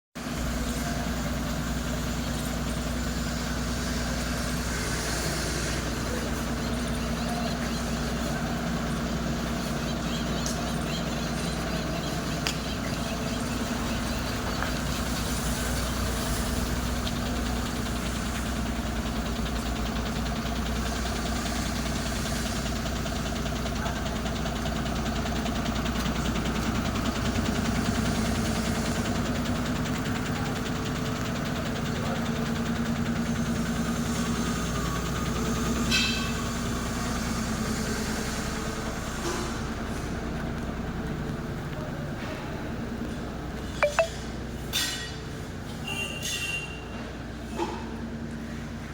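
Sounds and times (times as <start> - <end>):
diesel truck engine idling: 0.2 - 44.5
short sharp high-pitched sound: 43.8 - 44.2.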